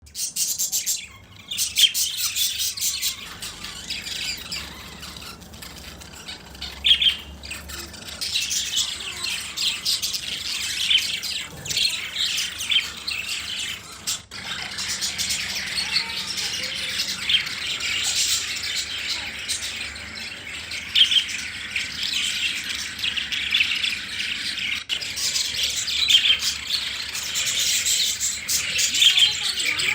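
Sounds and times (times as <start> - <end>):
lovebirds chirping and squawking: 0.0 - 29.9.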